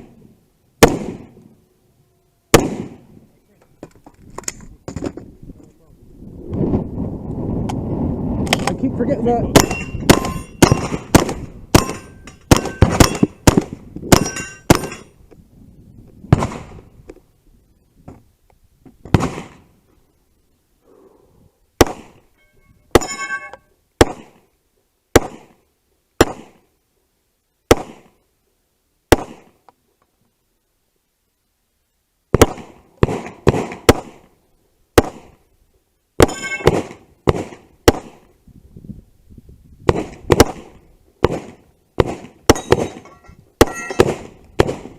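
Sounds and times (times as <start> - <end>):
gunshots: 0.8 - 1.4, 2.5 - 3.1, 9.5 - 15.0, 16.3 - 16.8, 19.1 - 19.7, 21.8 - 22.2, 24.0 - 24.4, 25.1 - 25.6, 26.2 - 26.6, 27.7 - 28.1, 29.1 - 29.6, 32.3 - 34.3, 35.0 - 35.4, 36.2 - 38.3, 39.9 - 44.9
steel targets ringing: 9.5 - 10.9, 11.8 - 13.4, 14.1 - 15.2, 22.3 - 23.7, 36.2 - 36.8, 42.5 - 44.1.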